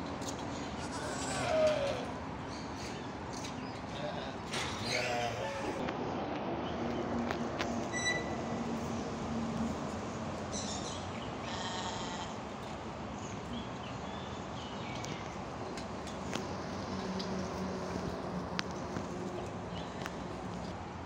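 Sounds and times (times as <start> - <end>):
high-pitched animal calls: 0.8 - 2.1, 4.8 - 5.8.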